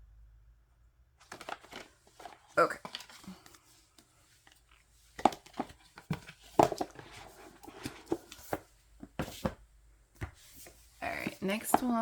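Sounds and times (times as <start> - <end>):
card and paper tapping and rustling: 1.2 - 9.6, 10.2 - 12.0.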